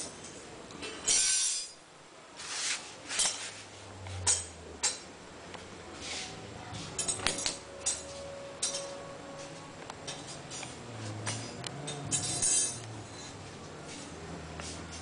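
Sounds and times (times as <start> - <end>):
low motor hum: 3.7 - 7.0
sharp clinks: 11.3 - 12.9.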